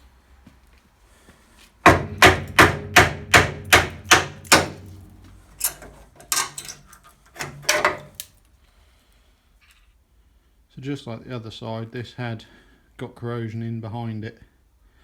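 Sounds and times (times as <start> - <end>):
hammer striking steel: 1.9 - 8.2.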